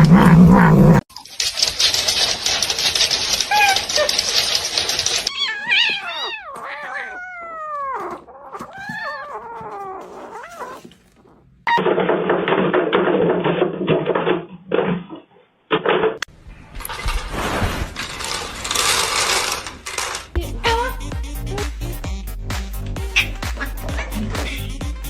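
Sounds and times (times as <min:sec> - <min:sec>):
cat yowling and meowing: 0:03.5 - 0:04.2, 0:05.3 - 0:10.9, 0:23.1 - 0:24.2.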